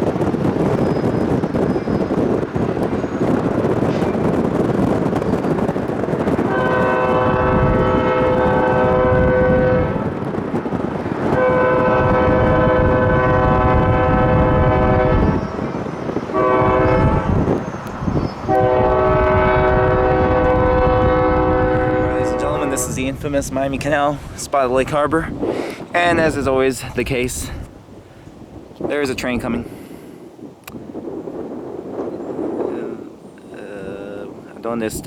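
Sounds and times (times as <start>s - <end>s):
low rumble of train: 0.0s - 35.0s
locomotive air horn blasts: 6.2s - 10.1s, 11.3s - 15.6s, 16.3s - 17.6s, 18.4s - 23.0s.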